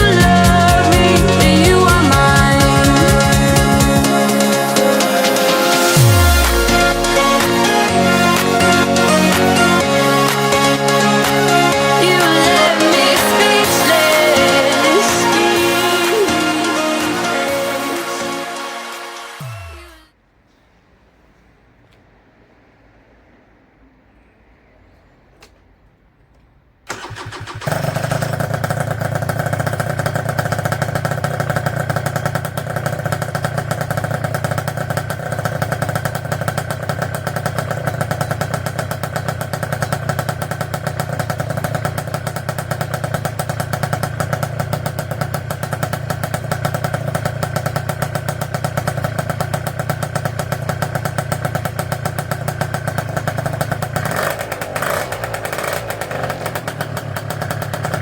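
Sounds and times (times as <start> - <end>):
scooter engine starting and idling: 0.0 - 20.2, 26.9 - 58.0.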